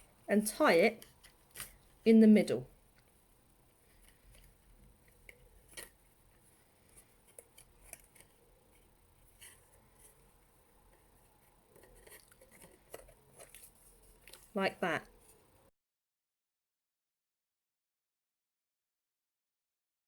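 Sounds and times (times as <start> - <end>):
rustling of string and card: 0.0 - 2.1, 2.9 - 15.6.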